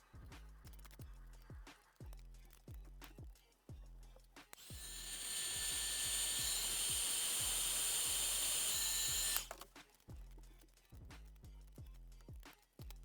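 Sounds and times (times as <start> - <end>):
background music with beat: 0.0 - 5.1, 8.8 - 13.0
power tool whining: 4.6 - 9.6.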